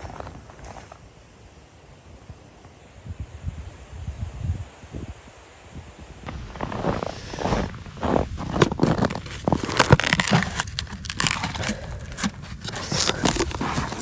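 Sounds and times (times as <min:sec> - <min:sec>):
crinkling and rustling: 0:06.3 - 0:14.0.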